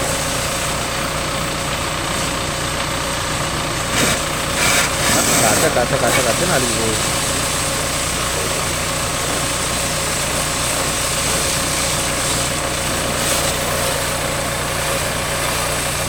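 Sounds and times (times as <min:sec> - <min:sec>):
engine running: 0:00.0 - 0:16.0
high-pressure water jet spraying: 0:00.0 - 0:16.0.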